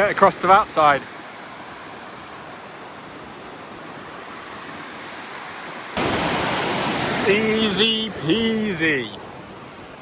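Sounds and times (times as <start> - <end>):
mountain stream rushing: 0.0 - 10.0.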